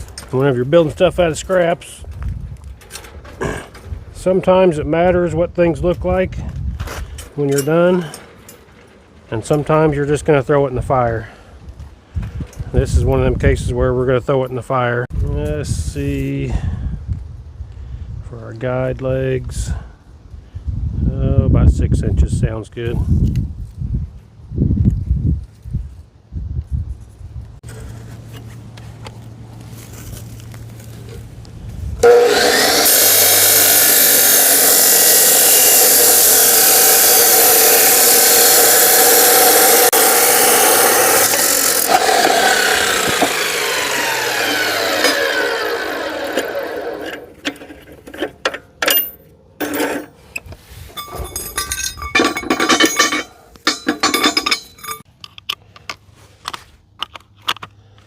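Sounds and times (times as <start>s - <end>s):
saw spinning down whine: 32.0s - 47.5s
power saw cutting steel: 32.0s - 50.2s, 50.9s - 55.0s
metal knocks and scrapes: 46.4s - 55.1s.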